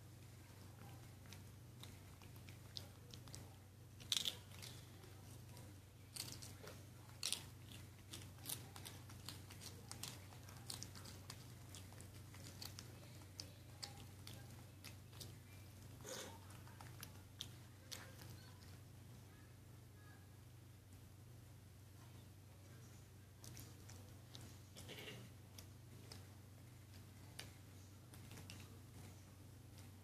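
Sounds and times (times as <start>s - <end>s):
animals chewing hard treat: 0.0s - 18.8s
faint low hum: 0.0s - 30.0s.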